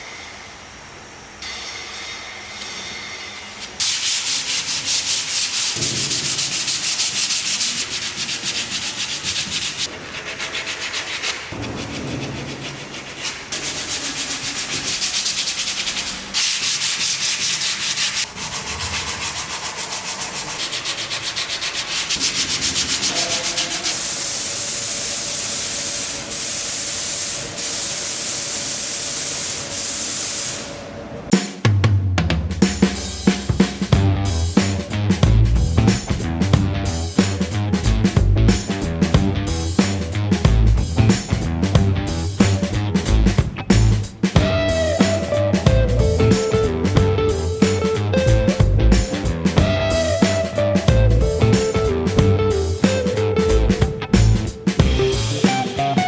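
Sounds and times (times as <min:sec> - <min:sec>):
sandpaper rasping on wood: 0:03.8 - 0:27.4.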